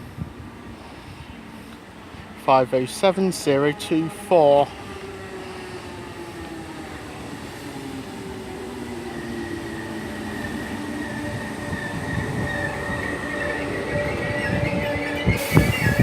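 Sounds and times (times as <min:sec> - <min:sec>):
electric train pulling in: 0:00.0 - 0:16.0
falling tone of train: 0:00.0 - 0:16.0
high brake squeal: 0:10.4 - 0:16.0.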